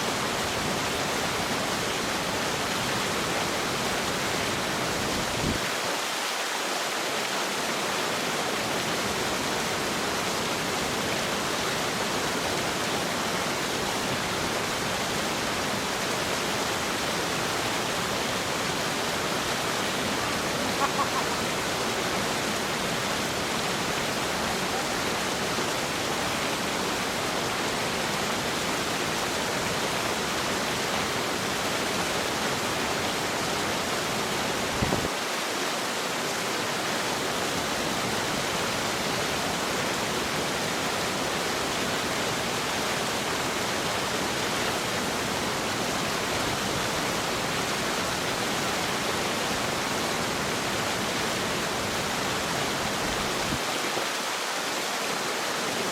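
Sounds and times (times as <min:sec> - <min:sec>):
fast-flowing water rushing: 0:00.0 - 0:55.9.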